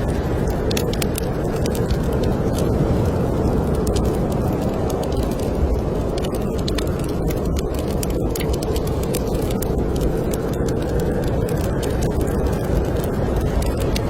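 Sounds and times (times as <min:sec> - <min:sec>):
snowstorm wind rushing: 0:00.0 - 0:14.0
wood fire crackling and popping: 0:00.0 - 0:14.0.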